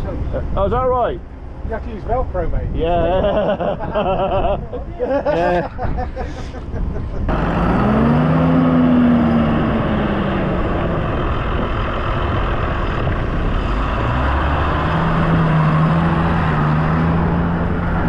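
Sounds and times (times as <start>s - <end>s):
tractor engine under load: 7.2s - 18.0s.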